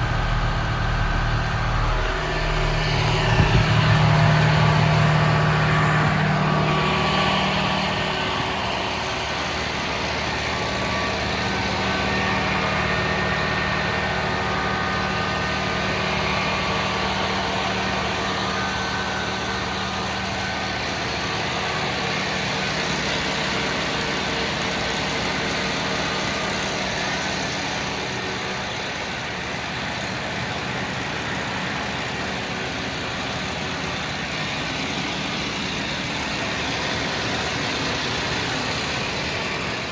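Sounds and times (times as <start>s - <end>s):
baler machinery hum: 0.0s - 29.9s
tractor engine running: 0.0s - 39.9s.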